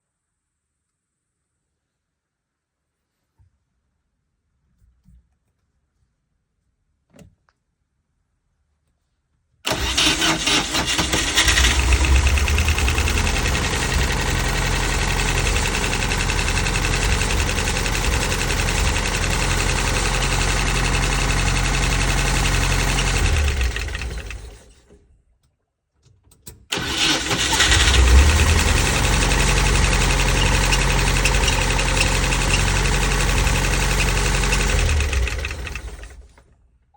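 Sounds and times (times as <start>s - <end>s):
petrol engine starting and idling: 9.7s - 24.9s, 26.7s - 36.5s.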